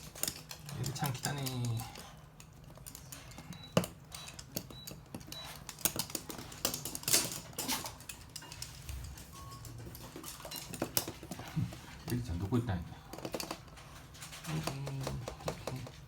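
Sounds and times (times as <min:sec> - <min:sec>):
dog claws clicking on hard floor: 0:00.0 - 0:09.2, 0:09.8 - 0:12.5.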